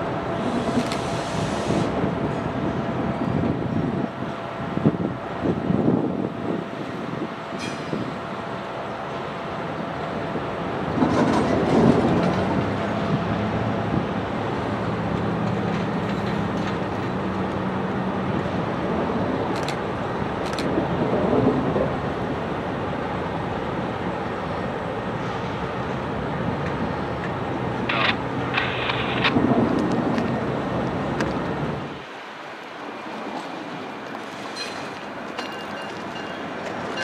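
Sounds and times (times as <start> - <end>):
train wheels rumbling on rail: 0.0 - 37.0
sharp clicks: 27.8 - 29.4.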